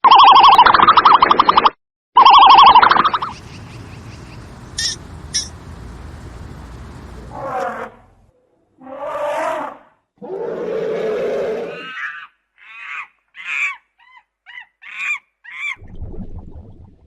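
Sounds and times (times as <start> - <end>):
animal calling: 2.4 - 8.2.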